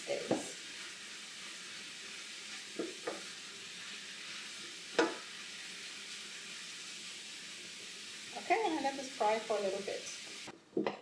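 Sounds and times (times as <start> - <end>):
vegetables sizzling in a pan: 0.0 - 10.6
wooden spoon knocking on pan: 2.8 - 3.3, 5.0 - 5.3.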